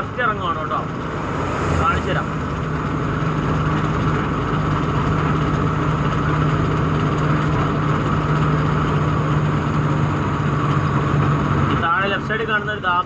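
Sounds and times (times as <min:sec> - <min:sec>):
road noise: 0:00.0 - 0:05.2.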